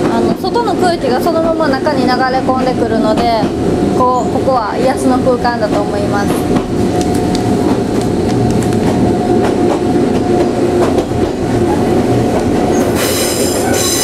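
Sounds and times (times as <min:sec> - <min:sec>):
train wheels rumbling on rails: 0:00.0 - 0:14.0
high metallic wheel squeal: 0:12.7 - 0:14.0.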